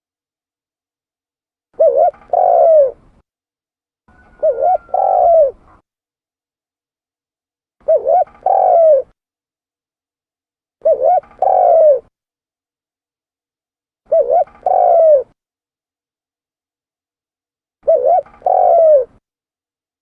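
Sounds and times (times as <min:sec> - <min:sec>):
dove cooing: 0:01.8 - 0:03.2, 0:04.1 - 0:05.8, 0:07.8 - 0:09.2, 0:10.8 - 0:12.1, 0:14.1 - 0:15.4, 0:17.8 - 0:19.2.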